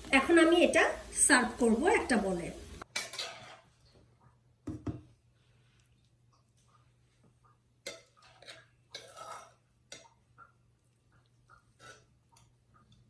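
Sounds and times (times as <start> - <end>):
low steady hum: 0.0 - 2.8
spoon scraping pan and bowl: 0.0 - 4.0, 7.8 - 10.2, 11.5 - 13.0.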